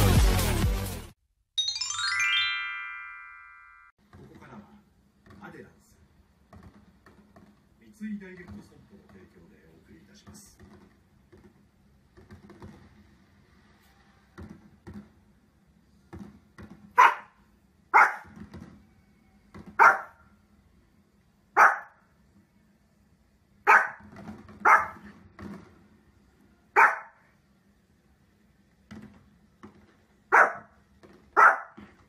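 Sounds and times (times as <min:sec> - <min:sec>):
dog barking: 0:17.0 - 0:18.4, 0:19.8 - 0:20.2, 0:21.6 - 0:22.0, 0:23.6 - 0:25.1, 0:26.8 - 0:27.3, 0:30.3 - 0:30.8, 0:31.4 - 0:31.8.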